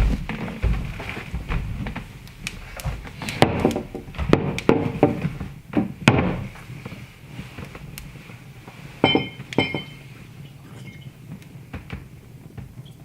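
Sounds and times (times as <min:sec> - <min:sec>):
ringing knocks and thuds: 0:09.0 - 0:10.0.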